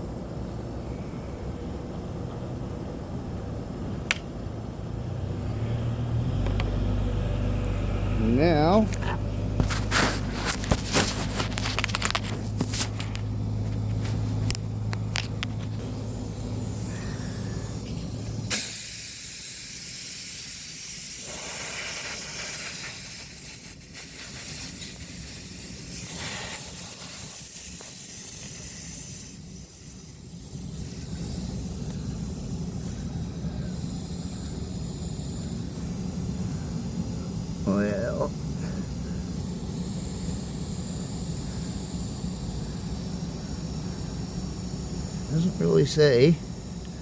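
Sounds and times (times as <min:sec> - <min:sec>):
low hum: 0:00.1 - 0:18.5
air hissing from tire: 0:05.1 - 0:47.0.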